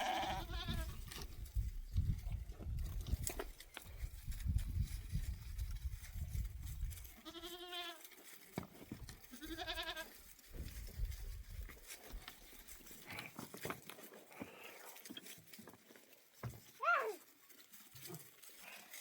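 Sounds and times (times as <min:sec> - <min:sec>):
goat bleating: 0:00.0 - 0:01.0, 0:07.1 - 0:08.0, 0:09.3 - 0:10.1.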